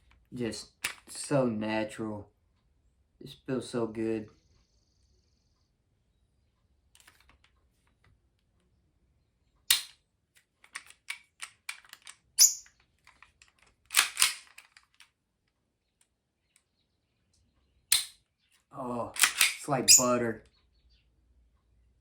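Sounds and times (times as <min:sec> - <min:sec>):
light clicks of pistol parts: 0:00.8 - 0:01.2, 0:09.7 - 0:15.2, 0:17.3 - 0:18.2, 0:19.1 - 0:20.2
pistol slide metal clacks: 0:09.7 - 0:15.1, 0:17.9 - 0:18.2, 0:19.2 - 0:20.2.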